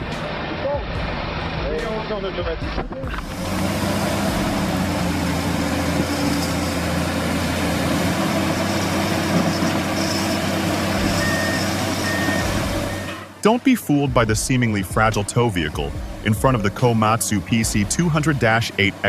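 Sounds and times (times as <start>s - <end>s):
heavy truck engine running: 0.0s - 19.0s
short high beeps: 11.0s - 13.3s.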